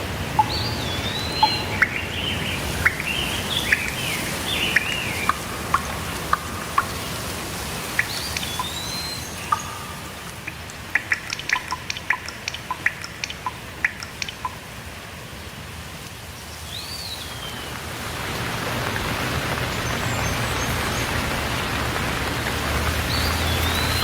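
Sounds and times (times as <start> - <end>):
birds chirping: 0.0 - 14.6, 19.4 - 22.0, 22.9 - 24.0
water drops plinking: 0.0 - 14.7
rain hiss: 0.0 - 24.0
whistled call: 0.3 - 14.6, 23.1 - 24.0.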